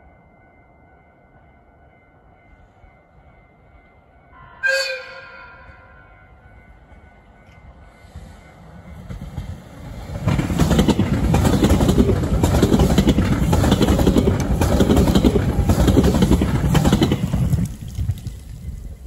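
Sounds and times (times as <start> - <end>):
train wheels rumbling and clattering: 6.7 - 19.0.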